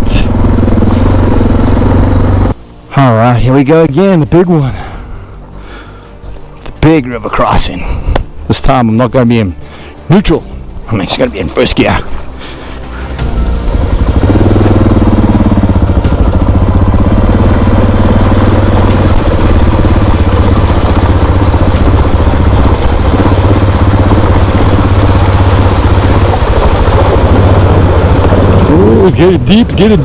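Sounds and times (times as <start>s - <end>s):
motorcycle engine running: 0.0s - 2.6s, 12.1s - 30.0s.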